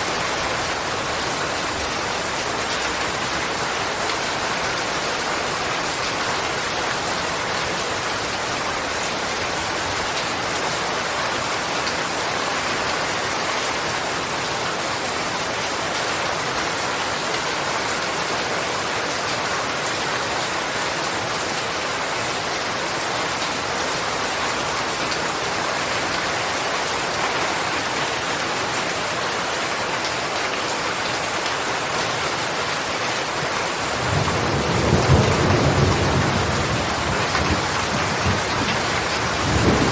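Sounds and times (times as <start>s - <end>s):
steady rainfall: 0.0s - 39.9s
low thunder rumble: 34.0s - 39.9s.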